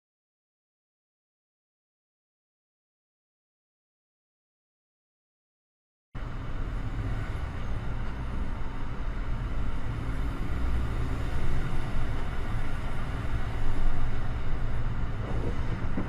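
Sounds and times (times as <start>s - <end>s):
road vehicle rumble: 6.2s - 16.0s.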